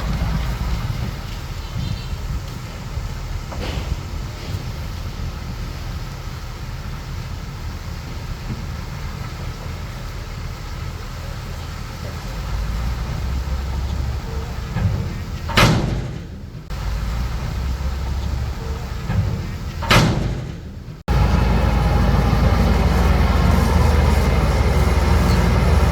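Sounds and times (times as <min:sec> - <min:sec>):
bulldozer diesel engine rumbling: 0:00.0 - 0:25.9
loud sharp metal clank: 0:14.8 - 0:16.6, 0:19.1 - 0:20.9.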